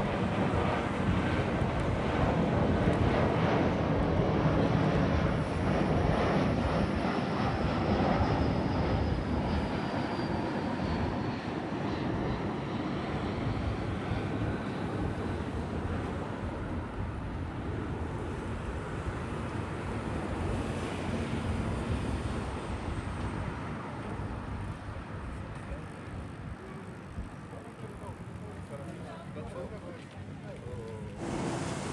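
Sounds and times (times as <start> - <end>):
jet airliner passing by: 0.0 - 31.9.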